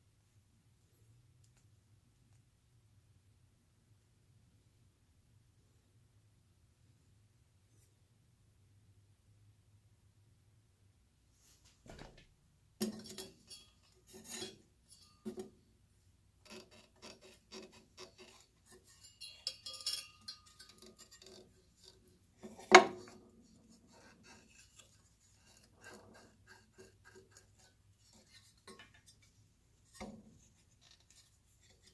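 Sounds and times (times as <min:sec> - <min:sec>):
small hard parts clinking: 0:18.2 - 0:23.1.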